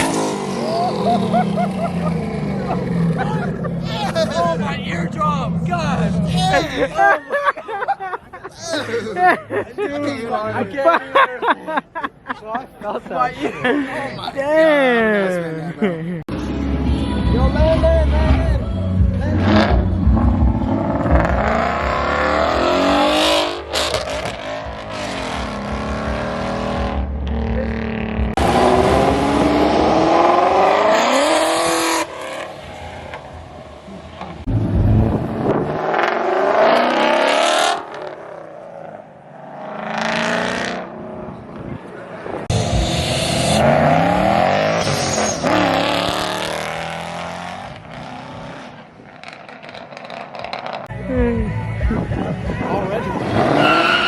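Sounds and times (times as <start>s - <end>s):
car engine revving: 0.0s - 6.8s, 19.1s - 54.0s.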